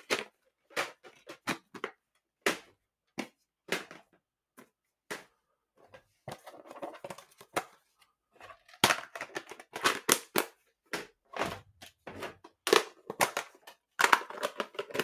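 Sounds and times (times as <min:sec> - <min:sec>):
plastic cases clacking and rattling: 0:00.0 - 0:15.0
plastic tape cases snapping: 0:08.7 - 0:15.0.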